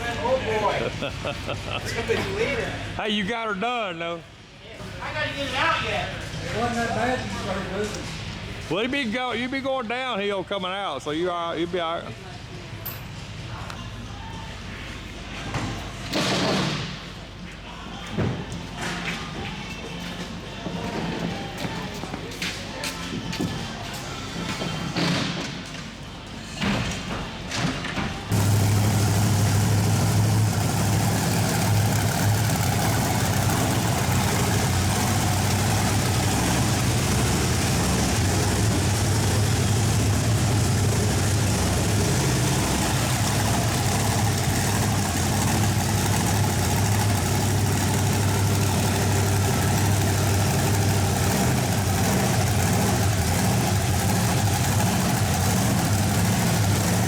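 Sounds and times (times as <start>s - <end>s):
large vehicle engine idling: 0.0s - 3.0s, 28.3s - 57.0s.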